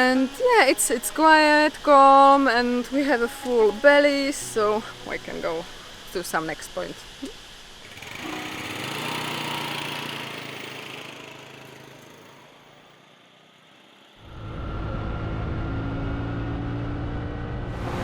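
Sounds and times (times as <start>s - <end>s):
steady engine: 7.8s - 18.0s.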